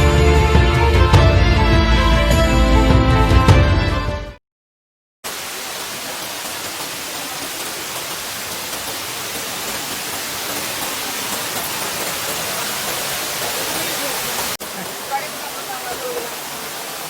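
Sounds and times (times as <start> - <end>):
waterfall rushing: 5.3 - 17.0.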